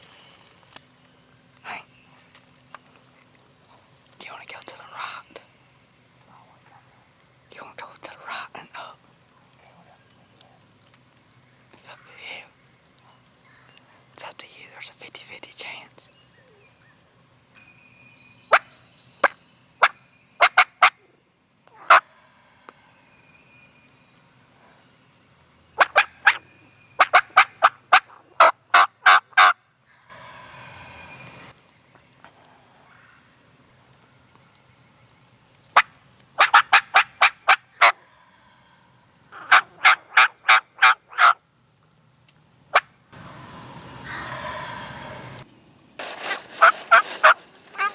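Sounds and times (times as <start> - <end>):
turkey clucking: 25.8 - 26.4, 27.0 - 29.5, 35.8 - 38.0, 39.4 - 41.4.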